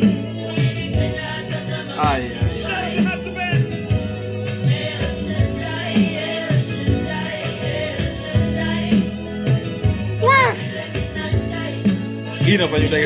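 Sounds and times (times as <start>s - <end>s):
person singing: 10.2s - 10.8s, 12.4s - 13.0s.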